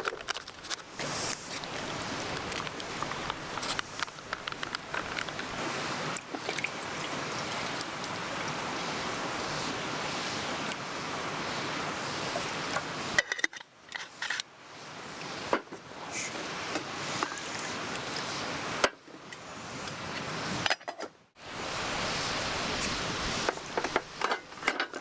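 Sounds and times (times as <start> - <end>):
mountain stream rushing: 0.7 - 13.2, 21.4 - 24.7
camp cookware clinking: 13.2 - 14.4, 23.4 - 25.0.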